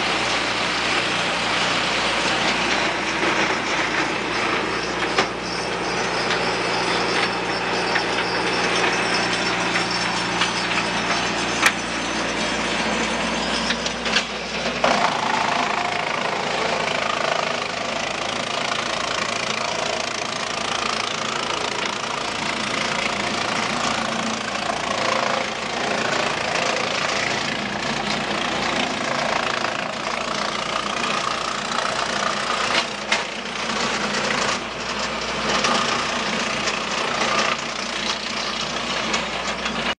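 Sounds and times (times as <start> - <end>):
engine running: 0.0 - 40.0.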